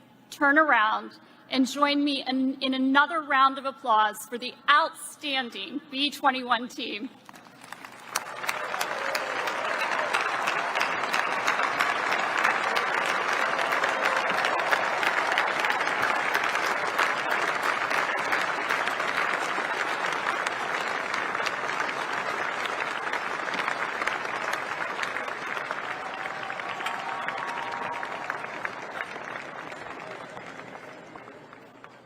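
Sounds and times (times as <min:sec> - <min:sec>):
large audience applauding: 0:07.2 - 0:32.0.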